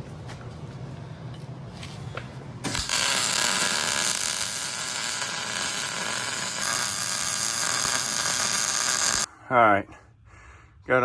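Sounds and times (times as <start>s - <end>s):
power tool motor whirring: 2.7s - 9.3s.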